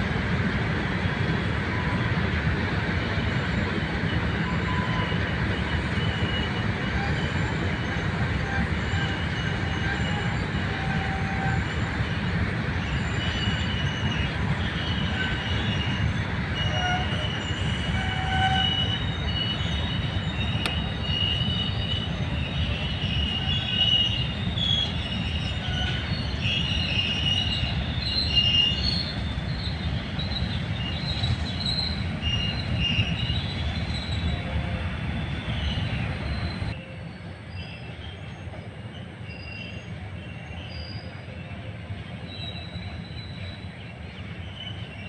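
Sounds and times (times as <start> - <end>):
train wheels rumbling on rail: 0.0 - 45.0
high metallic squealing: 12.9 - 34.6.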